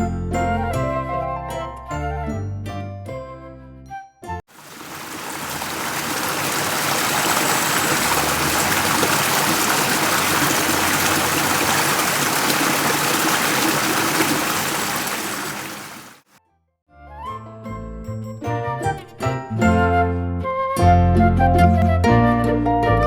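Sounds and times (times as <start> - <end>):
water running in a stream: 4.5 - 16.3.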